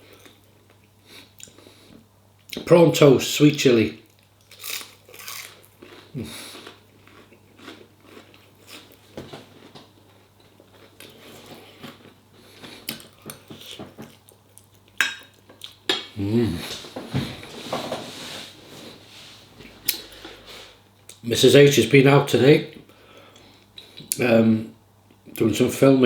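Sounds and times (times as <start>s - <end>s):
person chewing crunchy food: 4.1s - 15.9s.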